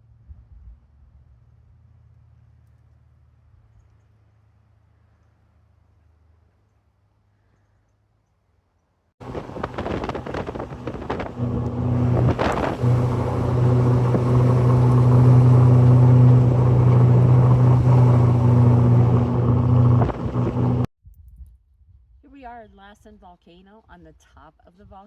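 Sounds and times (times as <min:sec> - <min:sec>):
motor running: 0:09.2 - 0:20.9
rushing noise: 0:09.2 - 0:20.9.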